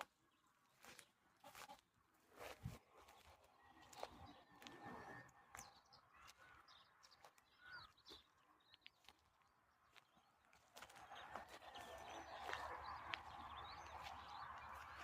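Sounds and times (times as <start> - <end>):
faint bird chirps: 3.0 - 9.2.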